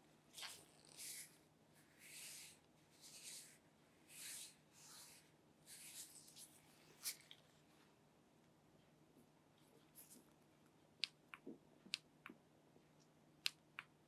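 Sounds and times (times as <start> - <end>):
faint brushing strokes: 0.3 - 7.9.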